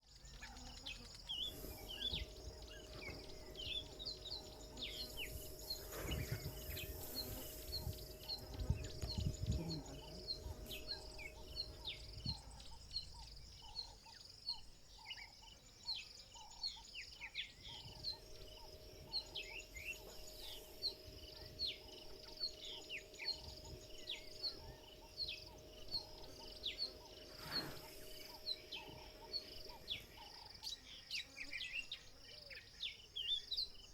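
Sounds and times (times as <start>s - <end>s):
insects trilling: 0.0s - 33.9s
faint steady hum: 0.1s - 32.9s
high bird chirps: 0.9s - 14.0s, 17.4s - 31.4s
birds whistling: 1.3s - 14.0s, 16.7s - 30.8s
low rustling thumps: 1.4s - 12.7s.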